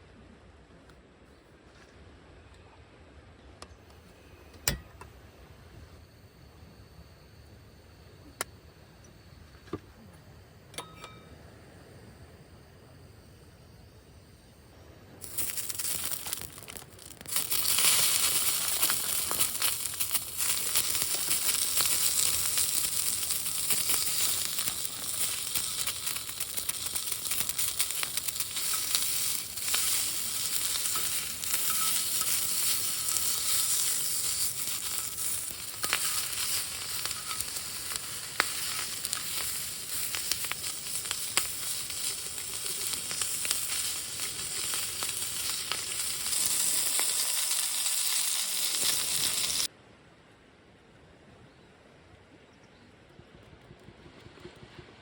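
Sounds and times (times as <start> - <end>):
food sizzling in a pan: 15.2 - 49.7.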